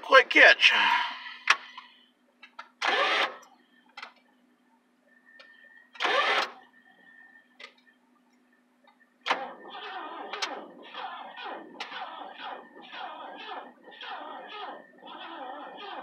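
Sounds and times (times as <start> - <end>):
car engine cranking: 2.4 - 4.1, 6.0 - 6.6, 9.2 - 16.0.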